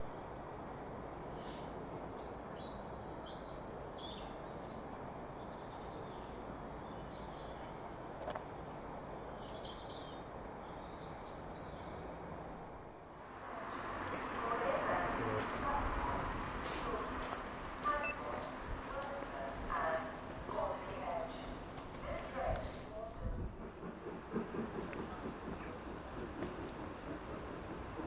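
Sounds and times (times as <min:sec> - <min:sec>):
low background noise: 0:12.5 - 0:23.1
birds chirping: 0:13.6 - 0:23.8.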